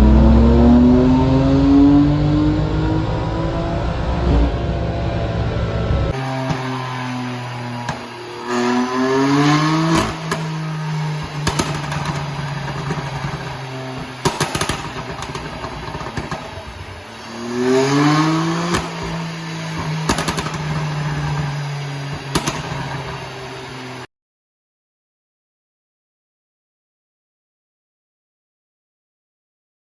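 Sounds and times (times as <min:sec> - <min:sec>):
car engine idling and revving: 0:00.0 - 0:24.1
exhaust pops and crackles: 0:11.2 - 0:17.0, 0:18.6 - 0:23.2.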